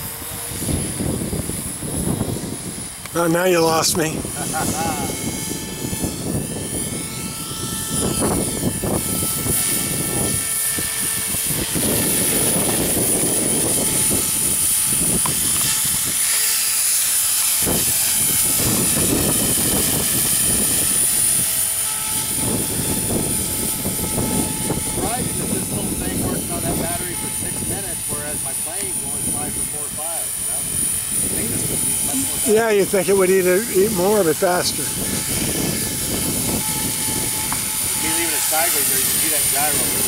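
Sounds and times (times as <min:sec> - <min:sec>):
toy helicopter high whine: 0:00.0 - 0:40.0.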